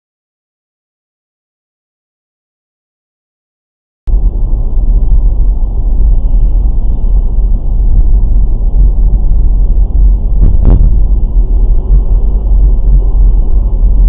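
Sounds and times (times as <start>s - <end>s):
car road and engine rumble: 4.1s - 14.0s.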